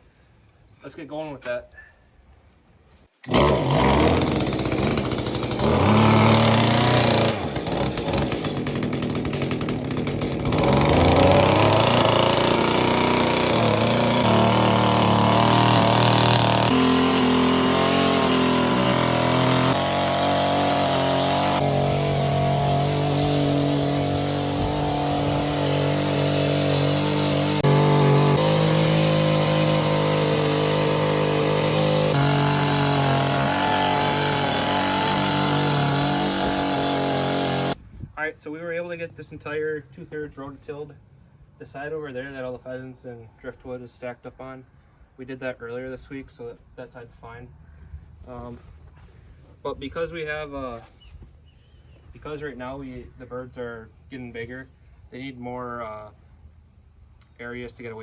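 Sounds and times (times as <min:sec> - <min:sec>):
rototiller engine under load: 0:03.2 - 0:37.8.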